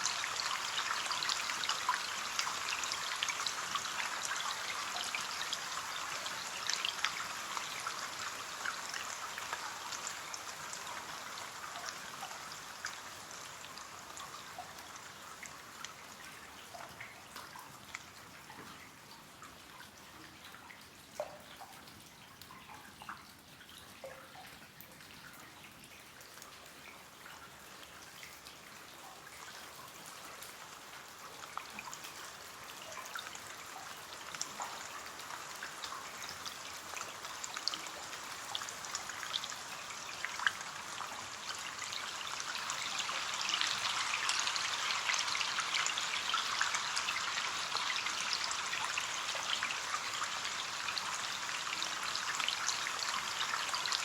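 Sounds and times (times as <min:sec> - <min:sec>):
rain on a window pane: 0:00.0 - 0:54.0.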